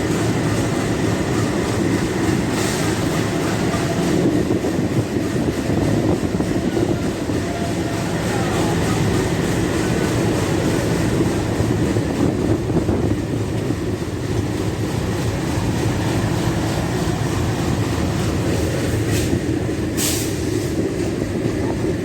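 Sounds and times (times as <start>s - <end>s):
train rumbling on rails: 0.0s - 22.0s
short hisses: 20.0s - 20.8s.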